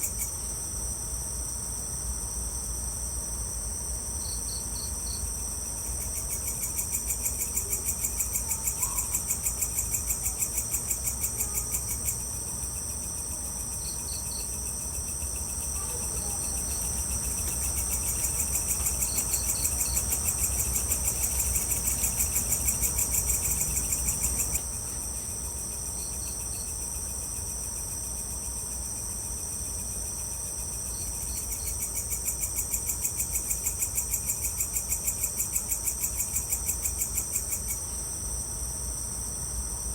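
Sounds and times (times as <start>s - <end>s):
crickets trilling: 0.0s - 39.9s
short insect chirp: 4.2s - 29.1s.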